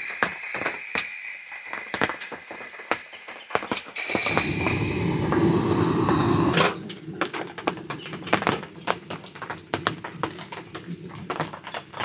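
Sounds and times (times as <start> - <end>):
gas stove burner rushing: 4.0 - 7.0.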